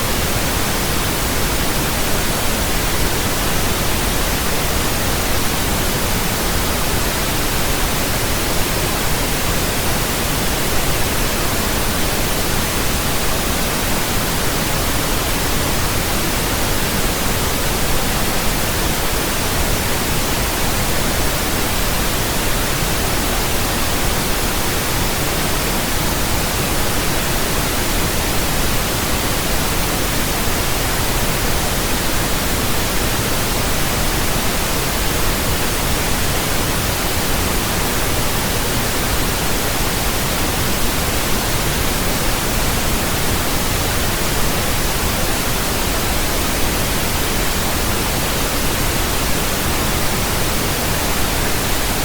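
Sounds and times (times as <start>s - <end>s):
pink noise hiss: 0.0s - 52.0s.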